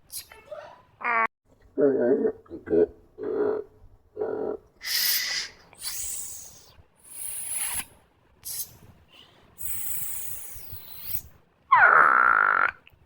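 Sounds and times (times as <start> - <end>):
short hissing bursts: 4.8 - 8.8, 9.6 - 11.3.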